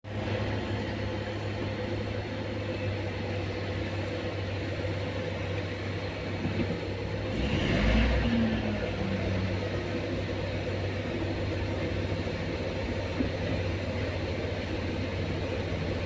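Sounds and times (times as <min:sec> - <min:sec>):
heavy vehicle engine revving: 0:00.1 - 0:16.0.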